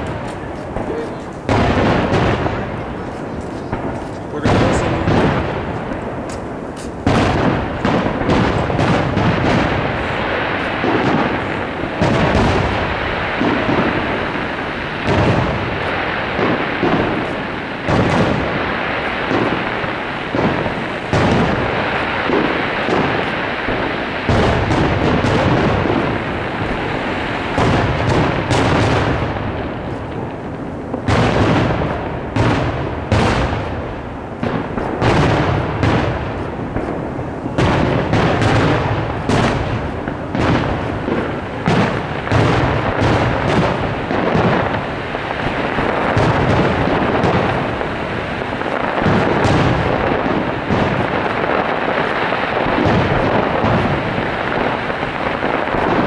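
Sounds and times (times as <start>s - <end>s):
firework shells booming: 0.0s - 56.0s
sharp firework reports: 0.0s - 56.0s.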